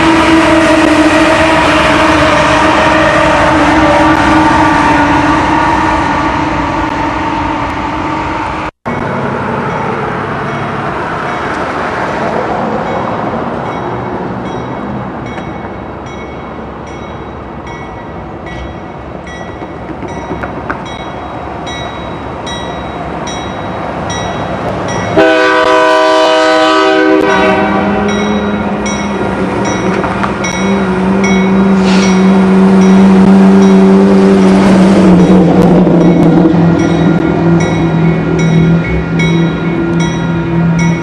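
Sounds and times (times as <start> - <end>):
locomotive horn: 0.0 - 8.3, 25.2 - 28.9
diesel train rumbling: 0.0 - 41.0.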